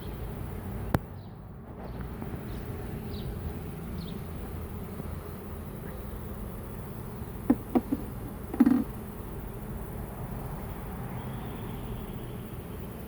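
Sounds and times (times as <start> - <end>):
sharp knocks: 7.5 - 8.9.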